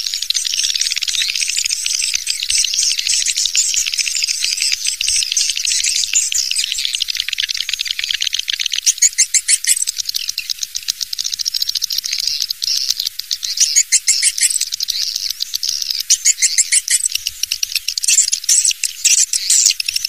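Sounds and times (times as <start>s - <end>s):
swiftlet chirping trills and clicks: 0.0s - 20.0s.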